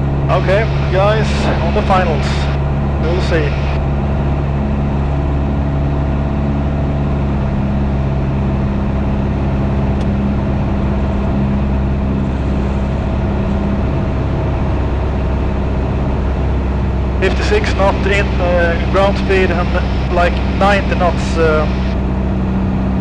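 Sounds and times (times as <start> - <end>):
light aircraft engine droning: 0.0 - 23.0.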